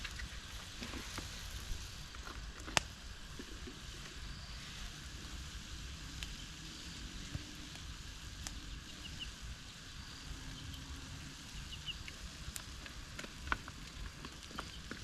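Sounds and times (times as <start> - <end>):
rain pattering in forest: 0.0 - 15.0
sharp drips and ticks: 10.0 - 15.0.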